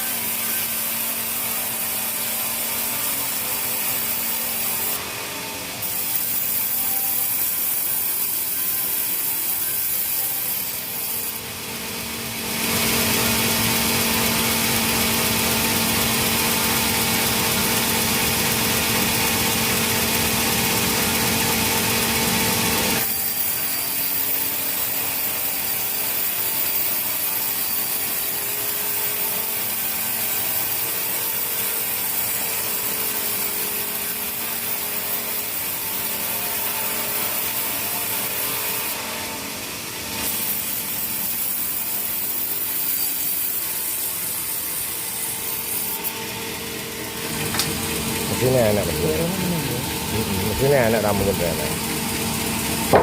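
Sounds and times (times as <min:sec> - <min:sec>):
sawmill saw cutting wood: 0:00.0 - 0:53.0.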